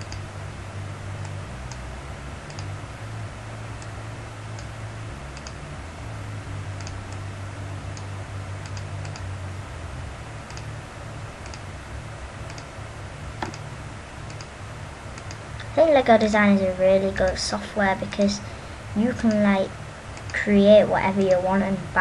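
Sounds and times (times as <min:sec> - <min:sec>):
computer mouse clicking: 0:00.0 - 0:00.3, 0:02.5 - 0:02.7, 0:05.4 - 0:05.6, 0:06.8 - 0:07.2, 0:07.9 - 0:09.3, 0:10.5 - 0:10.7, 0:11.4 - 0:11.6, 0:12.4 - 0:12.7, 0:13.4 - 0:13.6, 0:14.2 - 0:14.5, 0:15.2 - 0:15.4
steady low hum: 0:00.0 - 0:22.0.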